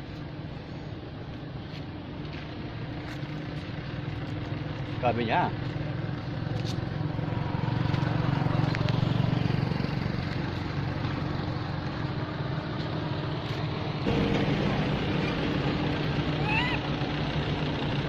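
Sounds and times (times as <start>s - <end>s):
low engine drone: 5.7s - 18.0s.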